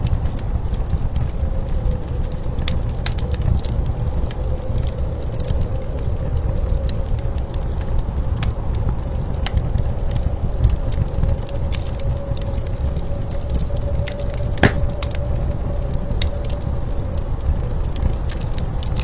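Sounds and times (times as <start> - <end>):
wood fire crackling: 14.6 - 15.2.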